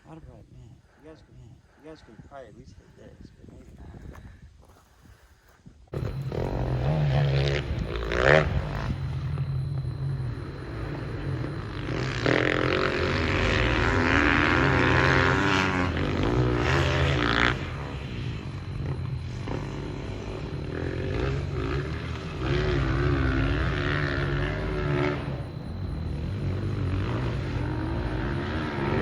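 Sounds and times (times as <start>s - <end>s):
engine running: 5.9s - 29.0s
low rumble: 5.9s - 29.0s.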